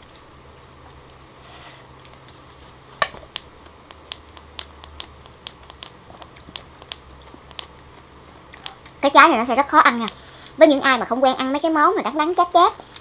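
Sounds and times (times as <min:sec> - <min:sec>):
chewing with wet mouth clicks: 0:03.6 - 0:09.0.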